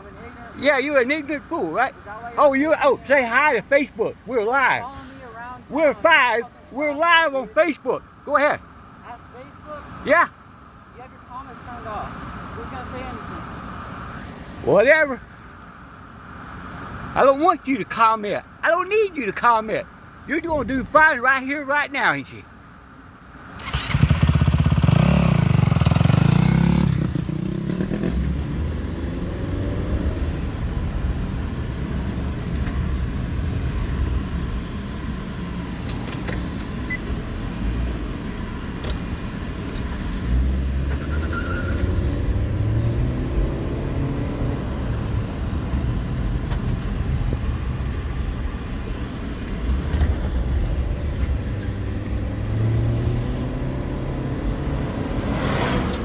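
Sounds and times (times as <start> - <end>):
dirt bike engine revving: 23.6 - 30.4, 40.3 - 45.2.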